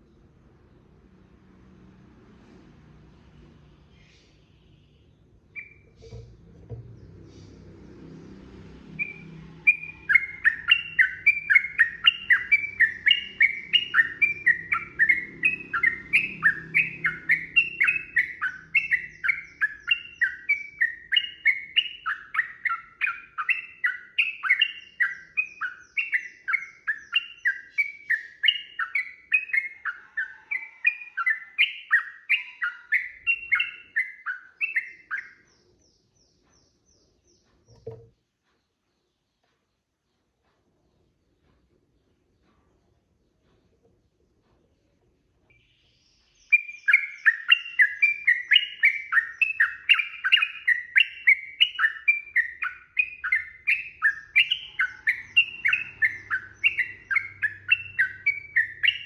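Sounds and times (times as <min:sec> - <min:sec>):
bird singing repeated phrases: 0:03.6 - 0:59.0
short low knock: 0:06.0 - 0:07.2, 0:37.7 - 0:38.2.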